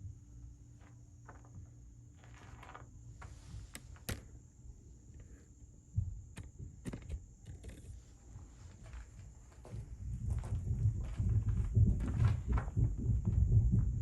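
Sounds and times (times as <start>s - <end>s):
steady low hum: 0.0s - 14.0s
footsteps in a room: 7.9s - 14.0s.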